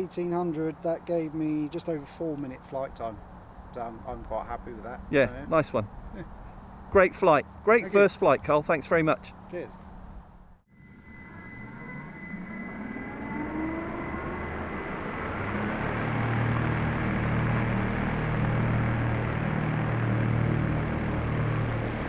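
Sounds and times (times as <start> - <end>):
model plane propellers droning: 5.8 - 22.0.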